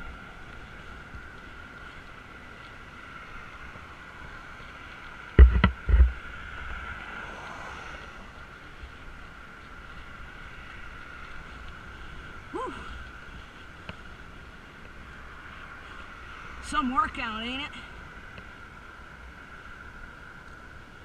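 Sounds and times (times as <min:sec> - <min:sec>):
wind rushing over microphone: 0:00.0 - 0:21.0
loud knocks and thumps: 0:05.4 - 0:06.1.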